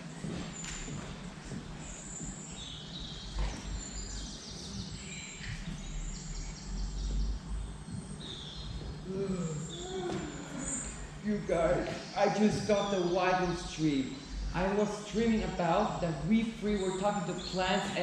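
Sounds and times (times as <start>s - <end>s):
low background rumble: 1.2s - 17.8s
birds chirping and trilling: 1.7s - 18.0s.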